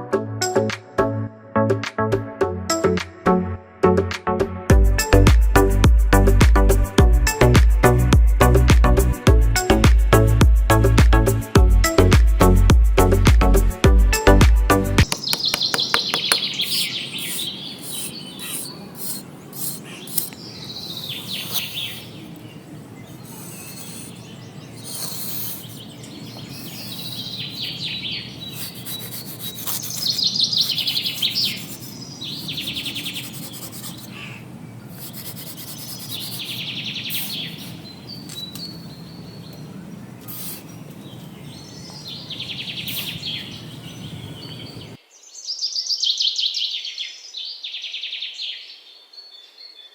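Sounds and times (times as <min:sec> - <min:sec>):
birds chirping in rapid trills: 0:15.1 - 0:45.0.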